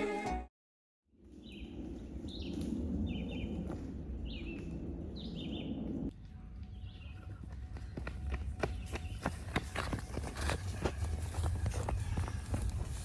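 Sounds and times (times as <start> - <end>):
outdoor background noise: 1.1 - 13.0
birds chirping: 1.3 - 10.0.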